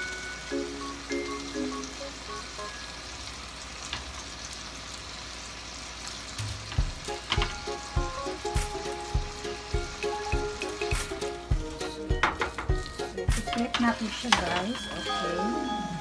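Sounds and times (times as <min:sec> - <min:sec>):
fish sizzling in a pan: 0:00.0 - 0:16.0
background music with drum beat: 0:06.4 - 0:14.0.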